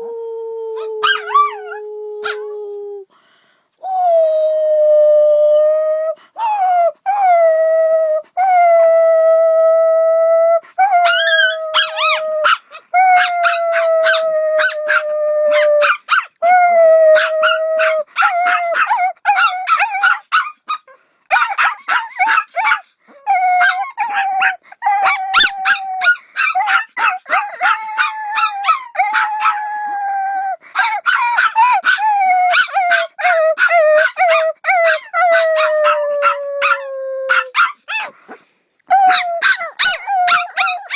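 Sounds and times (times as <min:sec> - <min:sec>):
dog howling and yelping: 0:00.7 - 0:02.6, 0:06.4 - 0:38.2, 0:38.9 - 0:40.9.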